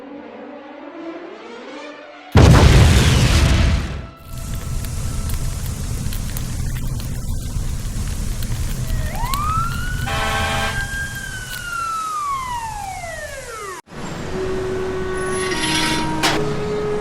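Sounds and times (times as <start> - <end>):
siren winding up and down: 8.8 - 13.8.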